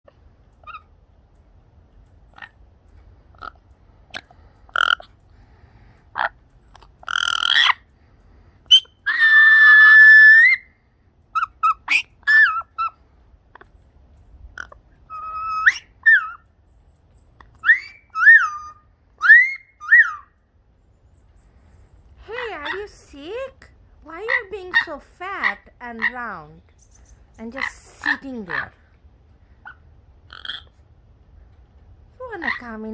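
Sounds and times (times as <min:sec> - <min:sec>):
bird whistling calls: 0:08.7 - 0:10.7, 0:17.6 - 0:20.3.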